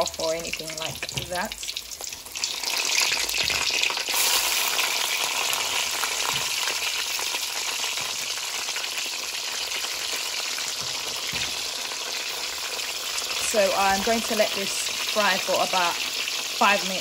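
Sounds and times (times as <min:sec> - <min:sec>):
aubergine sizzling in hot oil: 0:00.0 - 0:17.0.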